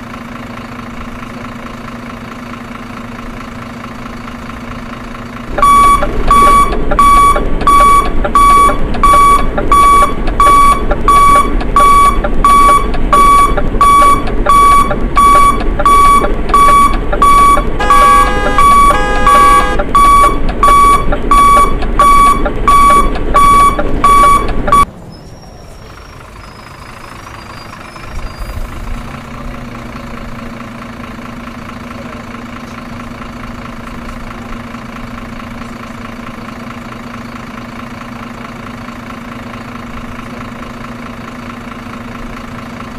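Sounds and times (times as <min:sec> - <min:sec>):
reversing alarm beeping: 0:05.5 - 0:24.9.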